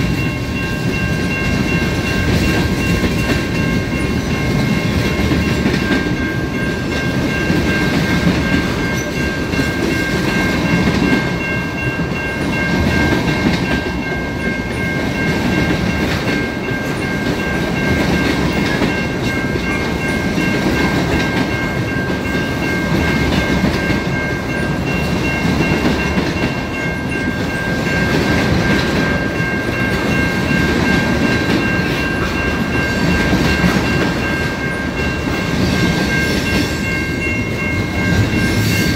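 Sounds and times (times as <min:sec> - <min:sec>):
high-pitched ringing tones: 0:00.0 - 0:38.9
train cars rumbling over rails: 0:00.0 - 0:38.9.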